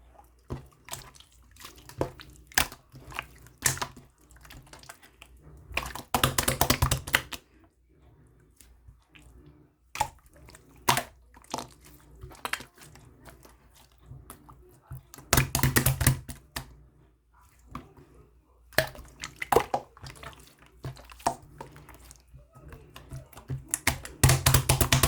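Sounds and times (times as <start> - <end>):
slime clicking and popping: 5.8 - 7.4, 15.1 - 16.7, 22.9 - 25.0.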